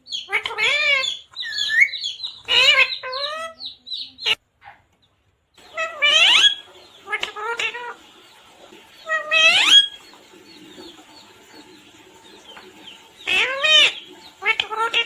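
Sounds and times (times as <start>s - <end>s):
parrot squawking and chattering: 0.0s - 4.8s, 5.6s - 8.3s, 9.0s - 10.1s, 11.7s - 15.0s.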